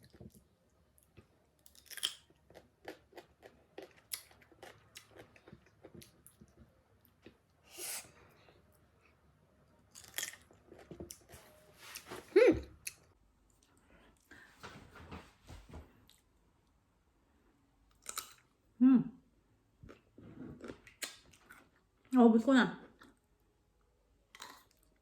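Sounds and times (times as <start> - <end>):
chewing crunchy mango: 0.0 - 7.4.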